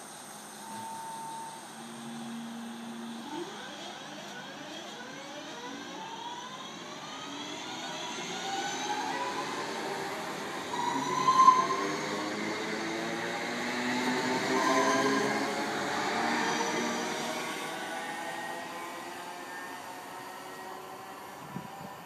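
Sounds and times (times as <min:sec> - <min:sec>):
train motor whine rising: 0:00.4 - 0:22.0.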